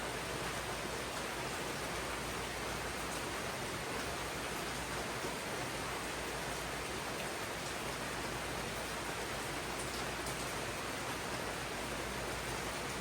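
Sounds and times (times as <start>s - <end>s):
rain on foliage: 0.0s - 13.0s.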